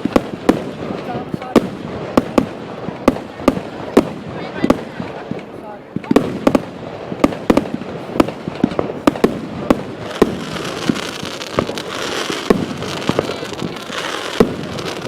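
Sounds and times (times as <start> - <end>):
fireworks bangs and pops: 0.0 - 15.0
fireworks crackling hiss: 0.0 - 15.0.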